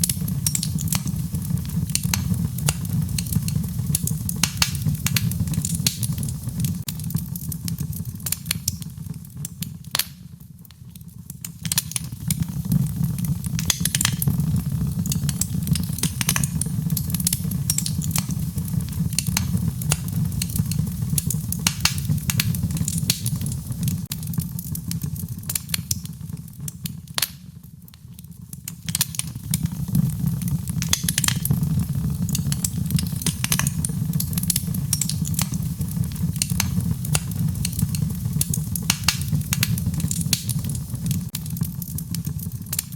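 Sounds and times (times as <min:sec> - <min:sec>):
wood fire crackling and popping: 0:00.0 - 0:42.9
rain: 0:29.0 - 0:42.9.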